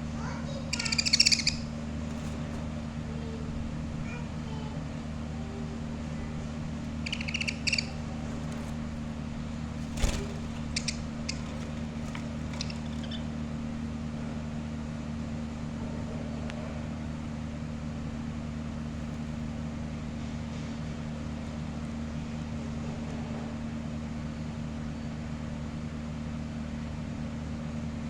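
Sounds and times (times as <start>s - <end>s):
low mechanical hum: 0.0s - 28.0s
high bird chirps: 0.7s - 2.5s, 6.9s - 9.0s, 9.9s - 13.3s.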